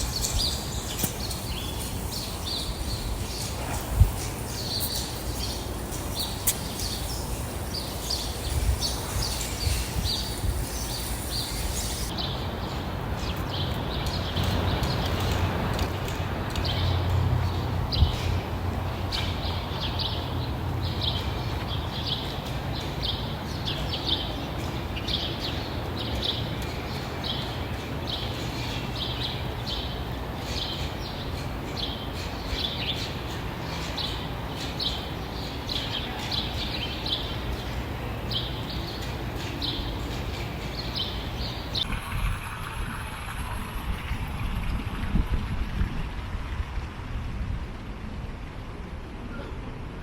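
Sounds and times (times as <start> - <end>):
bird chirping: 0.0 - 12.3.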